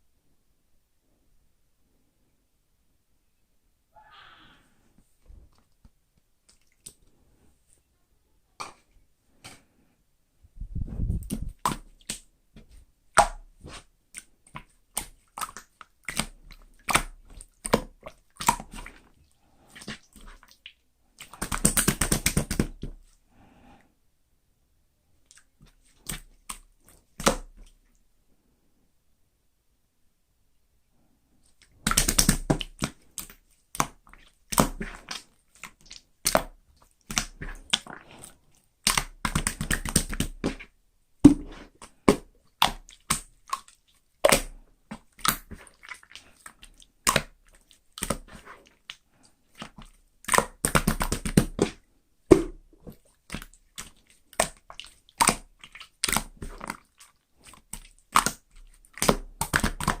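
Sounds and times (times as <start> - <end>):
wet chewing and crunching: 13.7 - 22.8, 31.4 - 40.7, 41.3 - 60.0.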